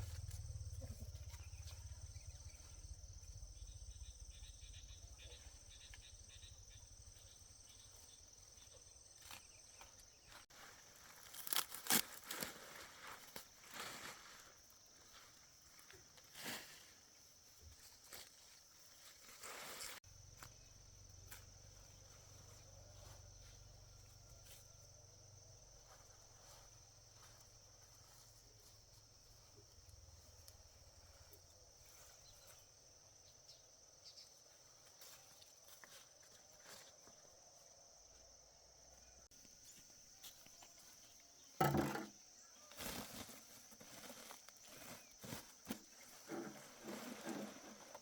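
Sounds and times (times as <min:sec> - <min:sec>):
low hum: 0:00.0 - 0:07.0
insects chirping: 0:00.0 - 0:48.0.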